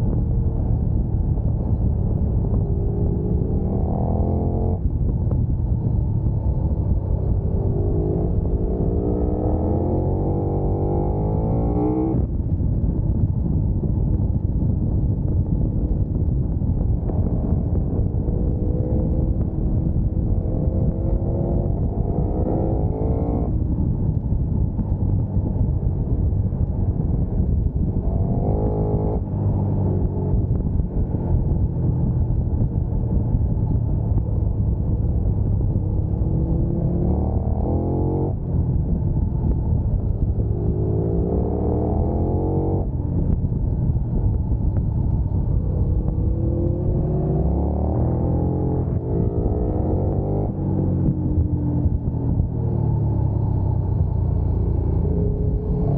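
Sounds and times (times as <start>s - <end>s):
wind and road noise: 0.0s - 55.9s
motorcycle engine revving: 2.4s - 4.9s, 6.8s - 12.3s, 17.0s - 23.6s, 27.7s - 31.7s, 35.6s - 38.5s, 40.1s - 43.3s, 45.5s - 55.9s.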